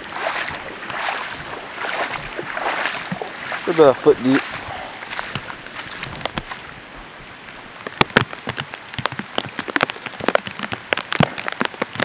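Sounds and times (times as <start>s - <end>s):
heavy rain: 0.0s - 12.0s
raindrops tapping on camera cover: 5.2s - 12.0s.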